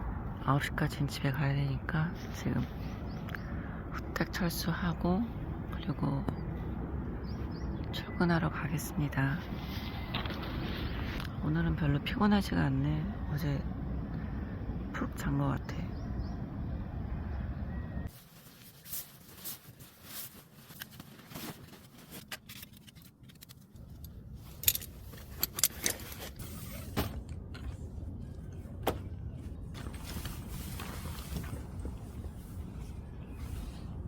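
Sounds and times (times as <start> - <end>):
camping gear clicks and clinks: 18.1 - 29.0.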